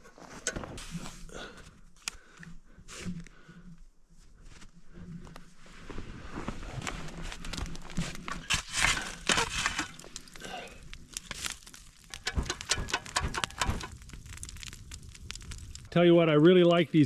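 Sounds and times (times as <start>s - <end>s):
rustling of handled objects: 5.4s - 15.9s
clicks and knocks of handling: 12.1s - 14.7s.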